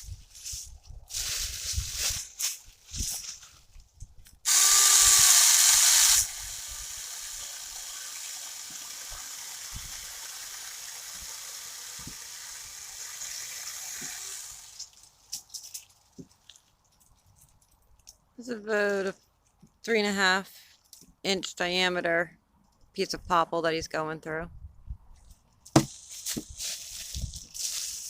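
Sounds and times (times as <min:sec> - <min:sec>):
mini chainsaw cutting wood: 0:04.5 - 0:14.9.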